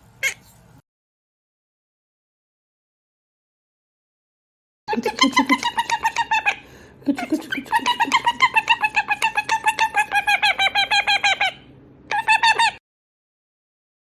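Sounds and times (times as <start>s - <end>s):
parrot chattering harsh chirps: 0.2s - 0.6s, 5.1s - 12.8s.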